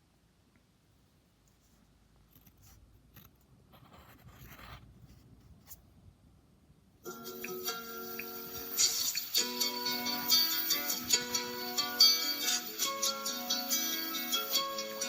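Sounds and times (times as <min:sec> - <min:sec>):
pencil scratching on paper: 0:01.6 - 0:05.8
guitar music: 0:07.1 - 0:15.0.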